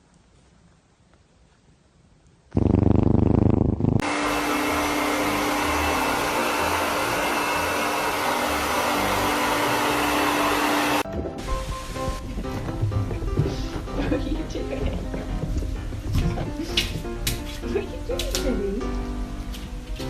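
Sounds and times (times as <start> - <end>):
electric blower rushing air: 3.4 - 12.4.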